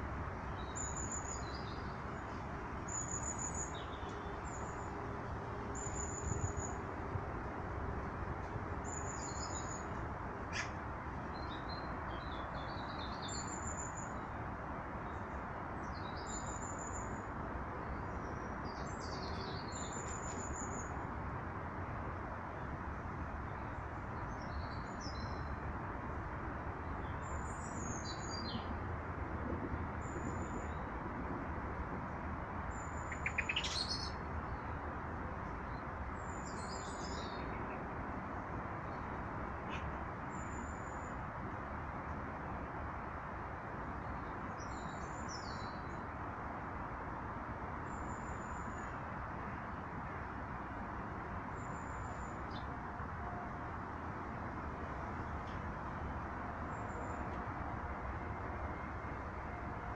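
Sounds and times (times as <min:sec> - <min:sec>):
small birds chirping: 0:32.7 - 0:34.2.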